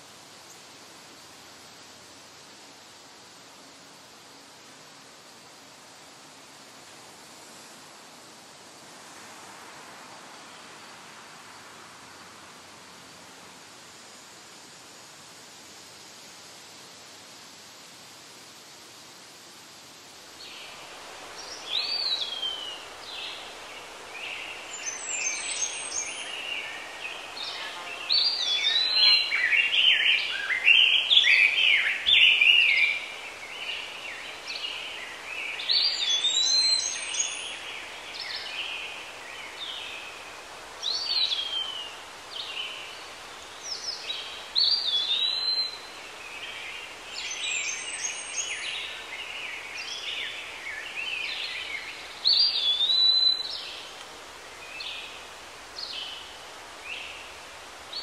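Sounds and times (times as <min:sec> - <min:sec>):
steady background hiss: 0:00.0 - 0:58.0
songbirds singing: 0:20.4 - 0:58.0.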